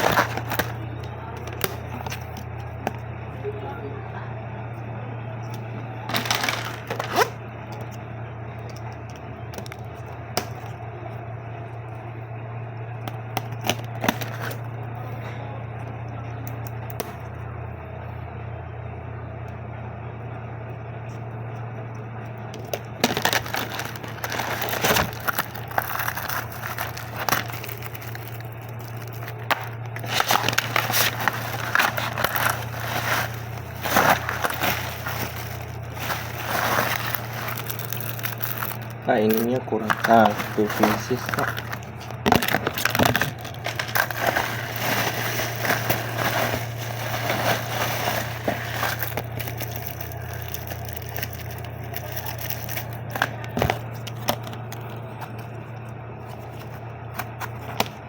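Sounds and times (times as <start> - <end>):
plastic packaging crinkling: 0.0 - 3.0, 5.6 - 8.0, 22.6 - 58.0
steady low hum: 0.0 - 58.0.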